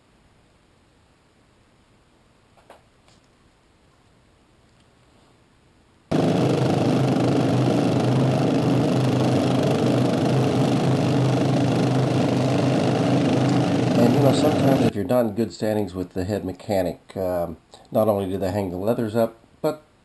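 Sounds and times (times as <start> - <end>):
engine idling: 6.1 - 14.9.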